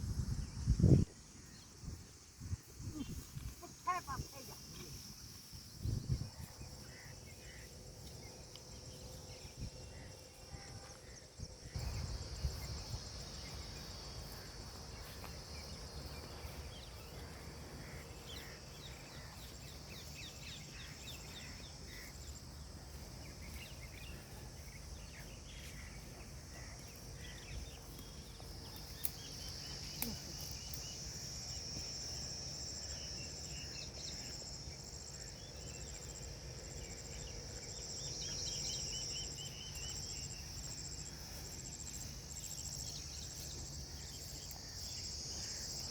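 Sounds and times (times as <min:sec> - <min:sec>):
short insect chirps: 0:26.6 - 0:45.9.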